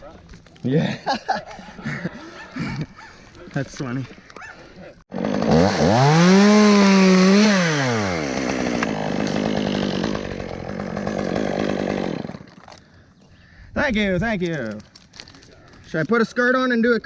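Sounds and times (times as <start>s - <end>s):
chainsaw revving and idling: 5.1s - 12.6s.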